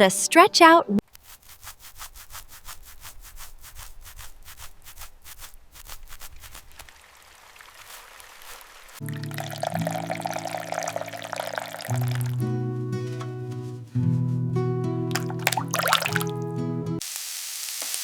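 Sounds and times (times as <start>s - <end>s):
music: 0.0s - 1.0s, 9.0s - 17.0s
fast rubbing strokes: 1.0s - 6.9s, 7.8s - 9.0s.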